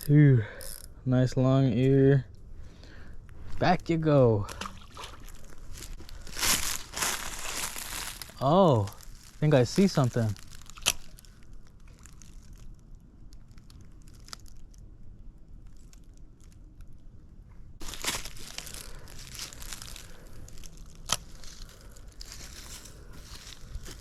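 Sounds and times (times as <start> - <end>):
footsteps crunching through dry leaves: 5.1 - 11.4, 17.8 - 24.0
twig snapping: 10.4 - 12.7, 17.8 - 22.8.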